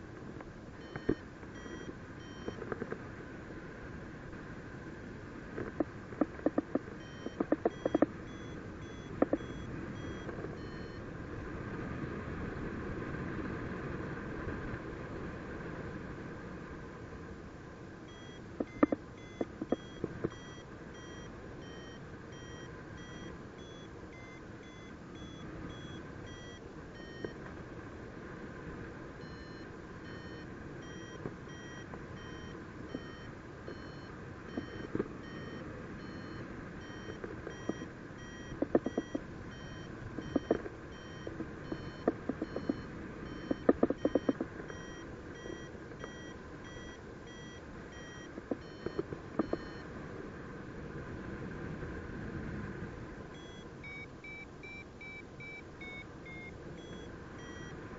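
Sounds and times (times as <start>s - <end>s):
variometer beeping: 0.8s - 2.9s, 5.7s - 11.0s, 18.1s - 27.4s, 29.2s - 49.8s, 53.3s - 57.8s
sharp clicks: 5.6s - 8.1s, 9.1s - 10.8s, 36.8s - 49.8s.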